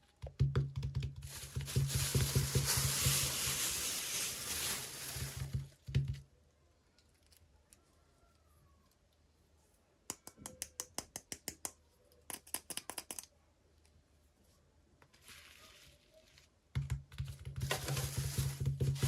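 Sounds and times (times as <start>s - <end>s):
packaging rustling: 1.2s - 5.8s, 17.6s - 19.0s.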